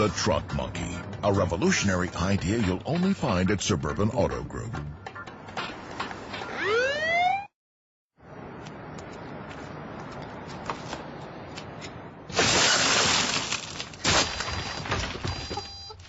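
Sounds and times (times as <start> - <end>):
glass shattering: 12.3 - 15.8.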